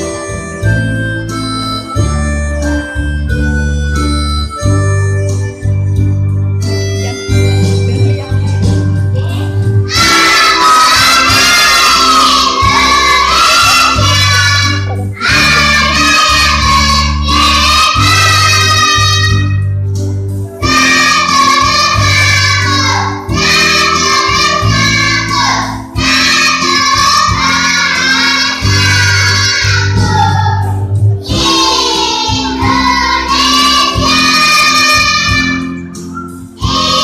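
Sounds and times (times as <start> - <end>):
children's choir singing: 9.9 - 19.7, 20.6 - 37.0
sustained low accompaniment notes: 12.3 - 23.5.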